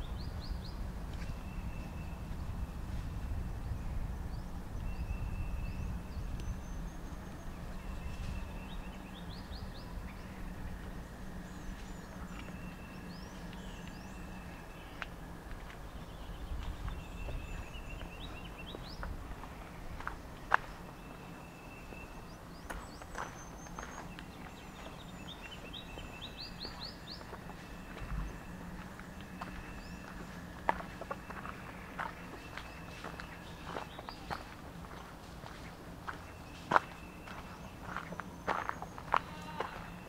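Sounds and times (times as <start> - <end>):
low rumble: 0.0 - 21.2
birds chirping: 0.0 - 40.0.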